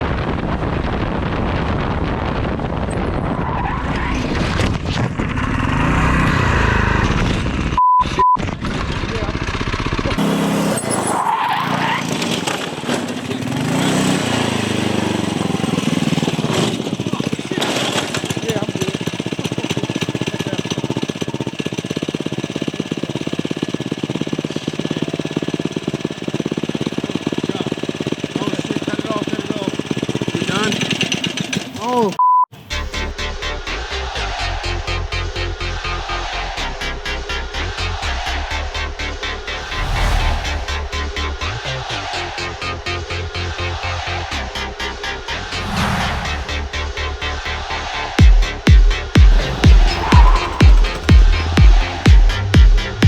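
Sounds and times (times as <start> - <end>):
vehicle engine running hard: 0.1 - 7.8, 8.4 - 31.9, 34.7 - 53.0
tires squealing: 2.9 - 7.4, 10.2 - 16.8, 49.2 - 52.4.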